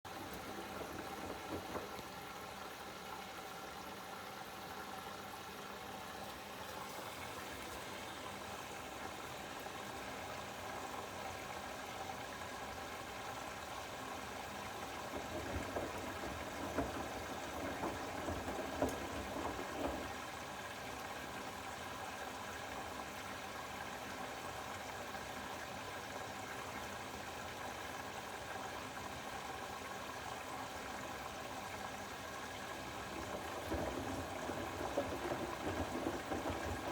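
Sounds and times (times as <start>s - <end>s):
rushing water in washing machine: 0.1s - 36.9s
uneven water splashing: 31.6s - 36.9s.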